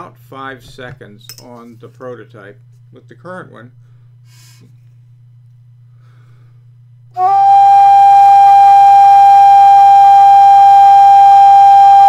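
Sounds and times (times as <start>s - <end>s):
faint low hum: 0.0s - 7.2s
whistle playing steady high note: 7.2s - 12.0s.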